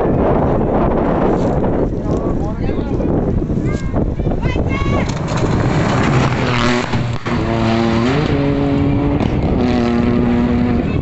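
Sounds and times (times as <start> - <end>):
rush of noise: 0.0 - 11.0
rally car engine at high revs: 5.4 - 11.0.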